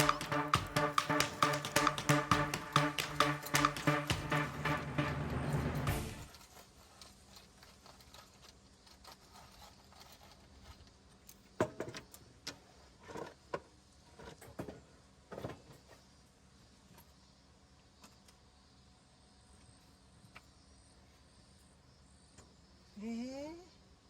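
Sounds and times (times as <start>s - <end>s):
background music: 0.0s - 6.4s.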